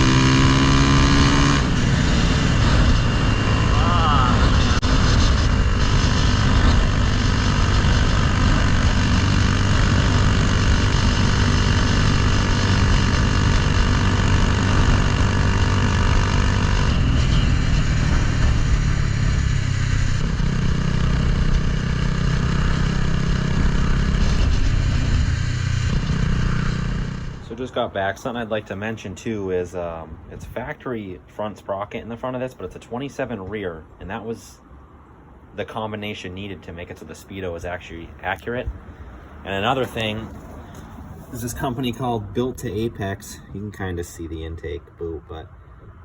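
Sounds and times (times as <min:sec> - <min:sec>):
motorcycle engine running: 0:00.0 - 0:27.6
heavy wind noise: 0:01.3 - 0:19.5.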